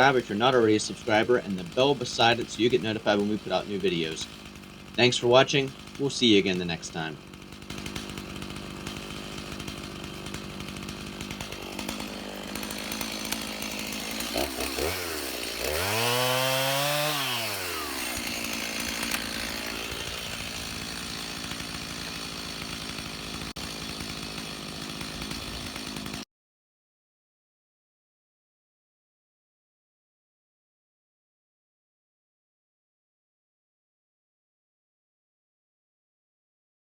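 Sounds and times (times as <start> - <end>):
chainsaw running: 0.0 - 26.2.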